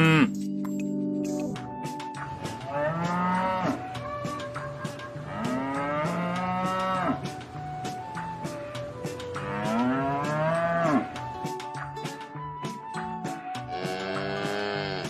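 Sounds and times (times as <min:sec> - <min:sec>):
cattle mooing: 0:00.0 - 0:00.3, 0:02.7 - 0:03.8, 0:05.2 - 0:07.2, 0:09.4 - 0:11.1, 0:13.8 - 0:15.0.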